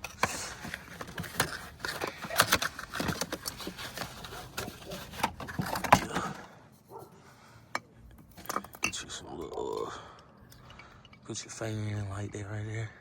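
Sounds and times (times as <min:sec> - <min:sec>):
hands handling car parts: 0:00.0 - 0:12.5.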